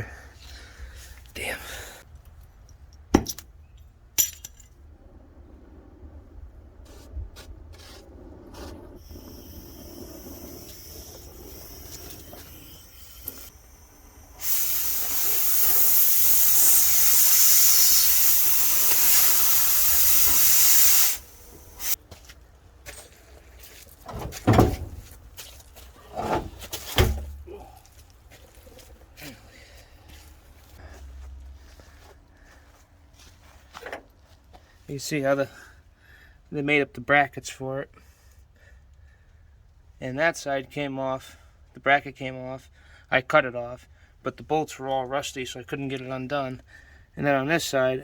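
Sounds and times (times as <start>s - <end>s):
sharp metallic knocks: 3.1s - 3.5s
loud steady hiss: 9.0s - 22.0s.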